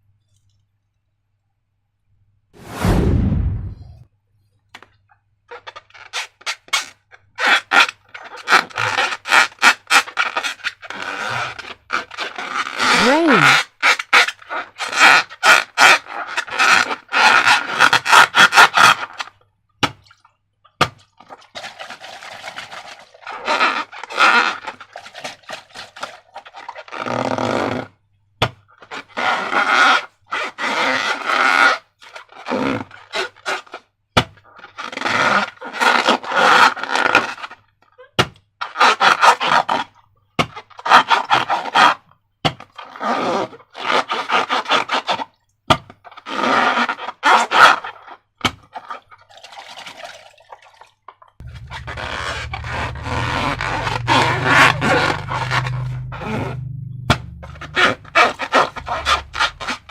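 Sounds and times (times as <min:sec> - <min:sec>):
slime squelching by hand: 0:51.4 - 0:59.9.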